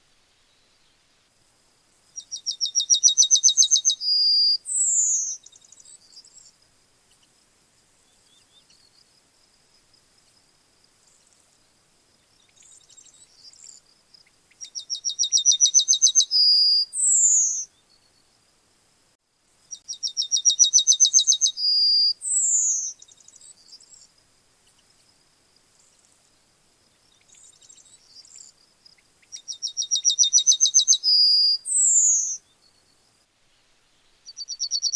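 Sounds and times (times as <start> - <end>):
yellowhammer singing: 2.2 - 6.6, 14.5 - 18.3, 19.7 - 24.1, 27.1 - 33.0, 34.2 - 34.9.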